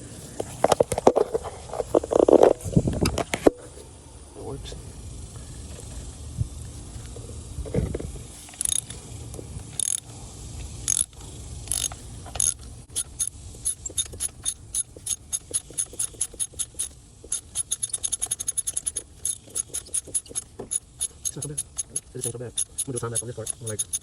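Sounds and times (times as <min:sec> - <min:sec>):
socket ratchet clicking: 0:08.6 - 0:09.0, 0:09.8 - 0:10.1, 0:10.8 - 0:24.0.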